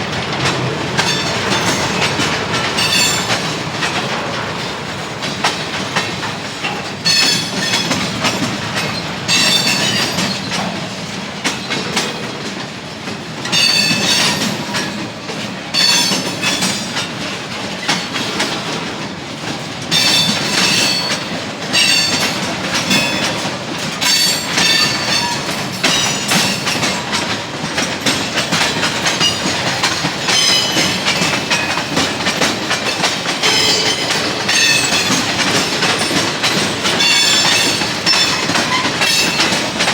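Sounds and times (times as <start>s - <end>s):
train wheels clattering over rails: 0.0s - 39.9s
wheels squealing: 28.4s - 39.9s.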